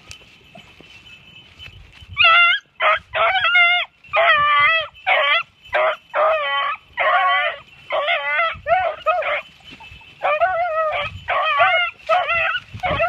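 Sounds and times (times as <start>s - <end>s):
hounds baying: 2.2s - 13.0s.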